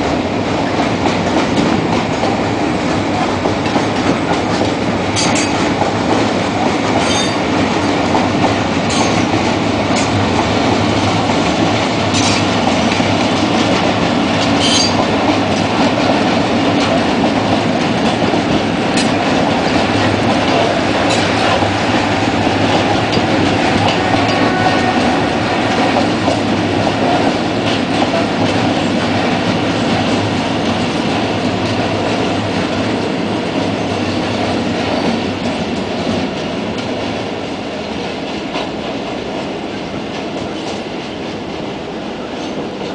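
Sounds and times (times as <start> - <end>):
freight train rolling past: 0.0 - 42.9.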